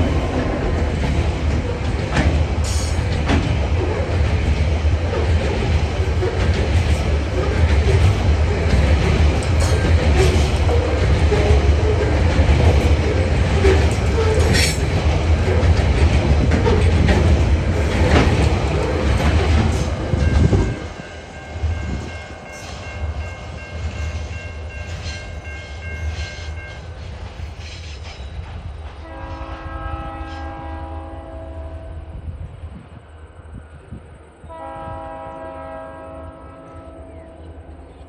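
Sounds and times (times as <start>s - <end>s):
train wagons rumbling and clacking: 0.0s - 38.0s
distant locomotive horn: 29.0s - 32.2s, 34.4s - 38.0s.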